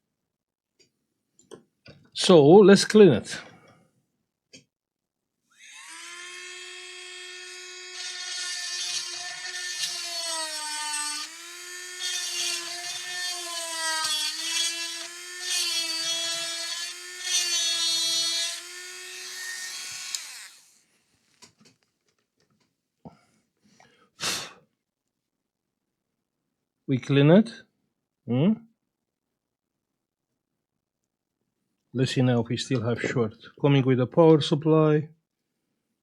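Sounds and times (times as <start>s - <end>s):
rotary tool whining: 5.6s - 20.8s.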